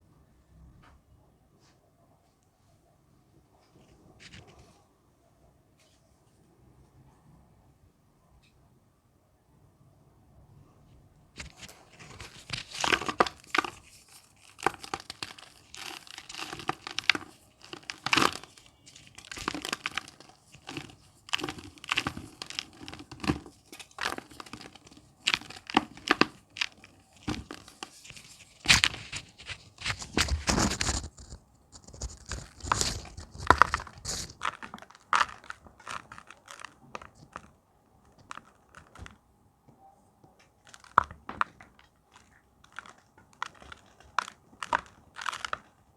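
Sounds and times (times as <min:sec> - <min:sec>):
chalk being crushed by hand: 0:11.4 - 0:37.5, 0:40.5 - 0:45.8.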